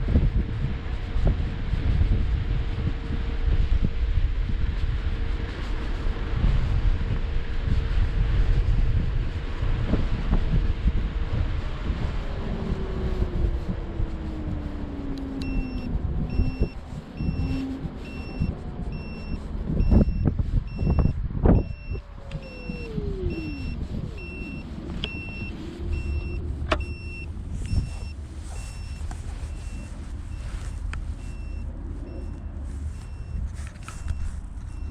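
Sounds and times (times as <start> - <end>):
street traffic: 0.0 - 34.9
whining vehicle tones falling: 12.5 - 34.9
high electronic beep: 18.1 - 29.0, 31.2 - 33.4, 34.0 - 34.9.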